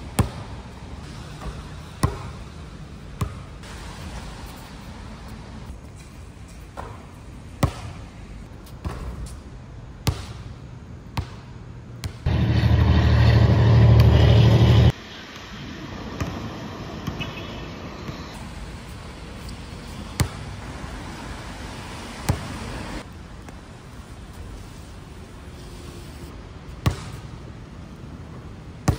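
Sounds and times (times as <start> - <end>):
basketball bouncing on court: 0.1 - 0.5, 1.2 - 2.4, 3.2 - 3.5, 7.6 - 8.0, 10.0 - 10.6, 11.2 - 12.3, 20.1 - 20.5, 26.8 - 27.3
storm wind: 12.3 - 17.0
rain: 18.4 - 23.4.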